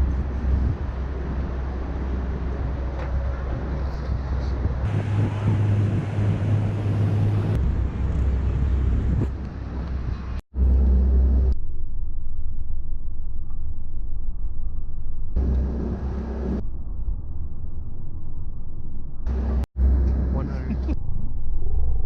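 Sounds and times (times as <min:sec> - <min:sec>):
riverboat engine rumble: 0:00.0 - 0:11.6, 0:15.4 - 0:16.6, 0:19.0 - 0:21.0.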